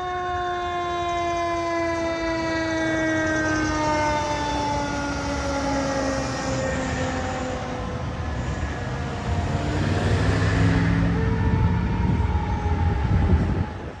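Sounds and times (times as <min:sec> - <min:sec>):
steady droning siren tones: 0:00.0 - 0:14.0
heavy truck engine rumbling: 0:03.2 - 0:14.0.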